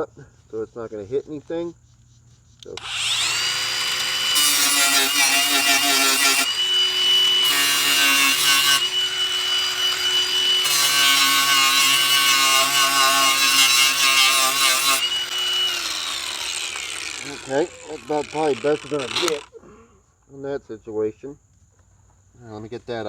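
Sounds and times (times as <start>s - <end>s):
grinder cutting into steel: 2.6s - 19.5s
grinder motor whining: 2.6s - 19.6s.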